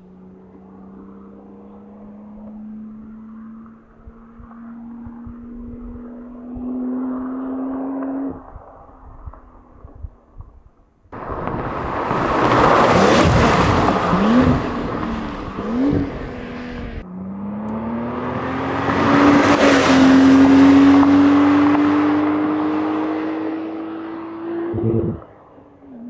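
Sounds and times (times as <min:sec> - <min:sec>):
car engine accelerating hard: 0:11.2 - 0:26.0.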